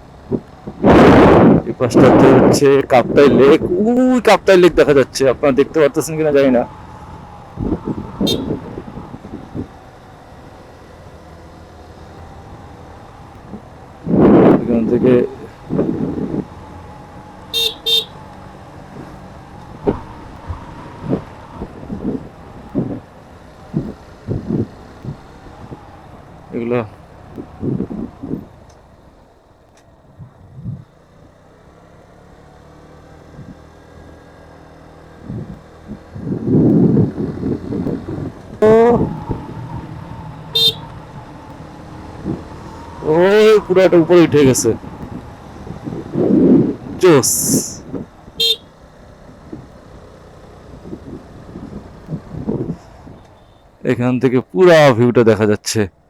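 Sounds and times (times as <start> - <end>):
wind noise on microphone: 0.3 - 3.8, 7.4 - 9.8, 13.2 - 16.7, 18.9 - 26.1, 27.4 - 28.6, 30.1 - 30.9, 33.3 - 33.7, 35.1 - 43.2, 44.4 - 48.2, 50.7 - 53.2
motorcycle engine running: 4.9 - 47.0, 47.8 - 53.3.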